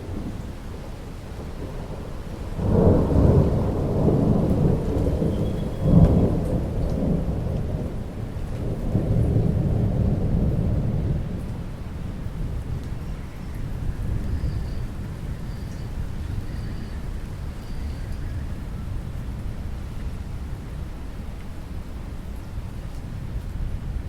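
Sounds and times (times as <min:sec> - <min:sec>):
thunder rumbling: 0:00.0 - 0:19.8
steady rainfall: 0:00.0 - 0:24.0.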